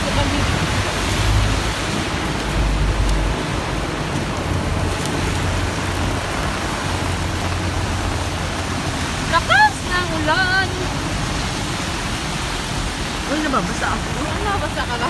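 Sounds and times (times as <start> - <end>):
heavy rain on pavement: 0.0 - 15.0
wind buffeting microphone: 0.0 - 15.0.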